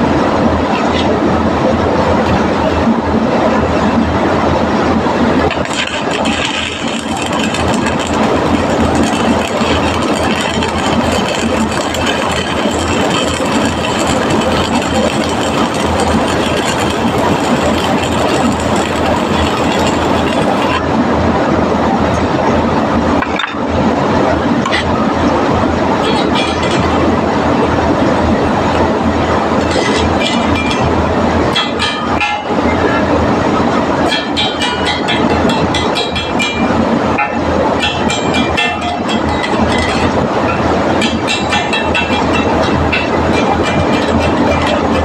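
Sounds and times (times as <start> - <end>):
electrical hum: 0.0 - 45.0
arc welding crackling buzz: 5.3 - 20.9, 28.2 - 32.2, 37.7 - 40.2.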